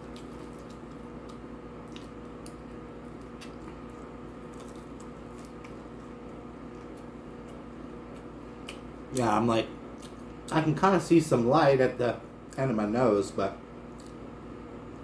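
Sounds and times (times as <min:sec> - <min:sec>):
chewing and wet mouth sounds: 0:00.0 - 0:08.9, 0:09.9 - 0:10.6
low electrical hum: 0:00.0 - 0:15.0.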